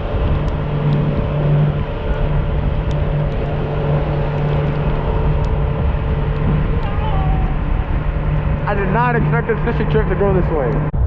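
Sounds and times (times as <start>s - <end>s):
heavy rain: 0.0s - 9.0s
boat engine running: 0.0s - 11.0s
wind: 0.0s - 11.0s
light ticks: 2.1s - 5.6s.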